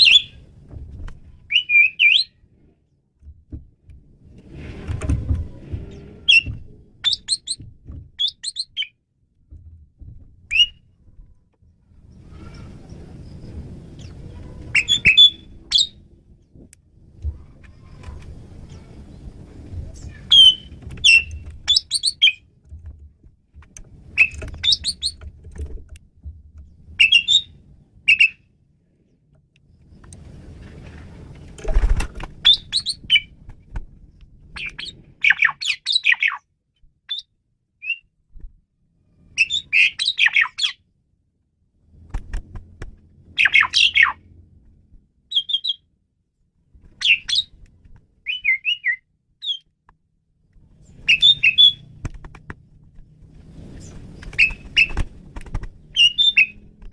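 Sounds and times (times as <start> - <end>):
starling singing: 0.0 - 0.4, 6.0 - 7.6, 8.2 - 9.0, 14.0 - 16.0, 20.0 - 22.5, 27.0 - 28.4, 43.4 - 44.2, 51.0 - 51.9, 56.0 - 56.7
low background rumble: 0.0 - 1.7, 2.3 - 35.8
dull thump: 7.6 - 8.2.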